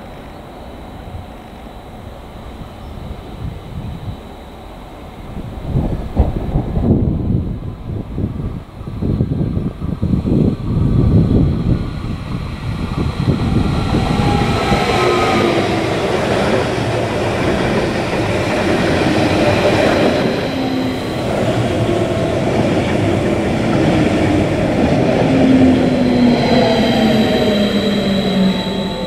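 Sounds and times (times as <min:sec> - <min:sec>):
train wheels rolling over rails: 0:01.5 - 0:29.0
whining tones sliding down: 0:12.2 - 0:29.0.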